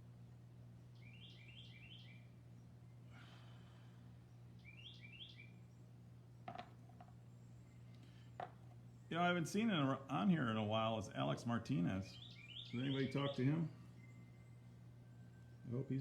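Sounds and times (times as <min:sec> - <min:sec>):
steady low hum: 0:00.0 - 0:16.0
bird chirping: 0:00.9 - 0:03.0, 0:04.6 - 0:05.8, 0:12.0 - 0:16.0.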